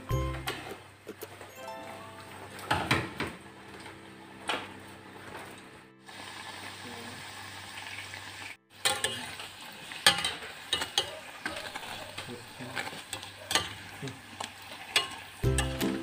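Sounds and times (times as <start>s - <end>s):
oil sizzling: 1.9s - 16.0s
metal tongs clicking against pot: 10.0s - 13.9s, 14.9s - 15.9s.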